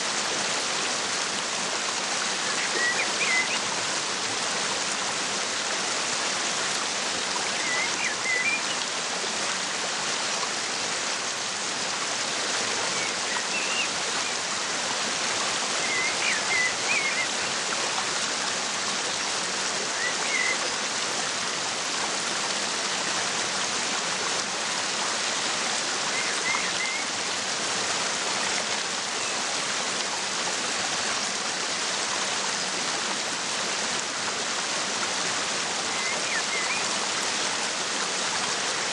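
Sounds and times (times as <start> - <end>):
waterfall rushing: 0.0 - 38.9
faint bird chirps: 2.4 - 3.6, 7.5 - 8.8, 12.9 - 14.4, 15.8 - 17.5, 19.9 - 20.6, 26.1 - 27.1, 35.9 - 36.9.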